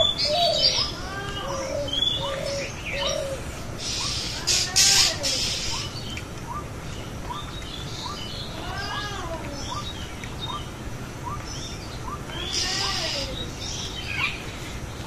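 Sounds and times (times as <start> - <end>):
bird cooing: 0.0 - 9.9, 12.0 - 13.5
rustling hiss: 0.0 - 15.0.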